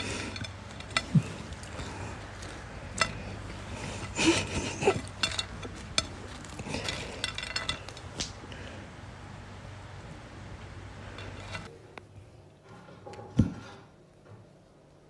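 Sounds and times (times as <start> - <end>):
hard objects clinking and knocking: 0.0 - 8.3.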